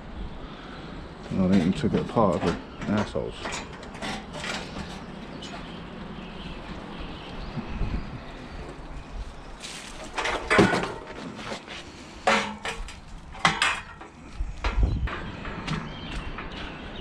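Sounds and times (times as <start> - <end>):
scrap metal clanking: 1.4 - 5.8, 9.6 - 17.0.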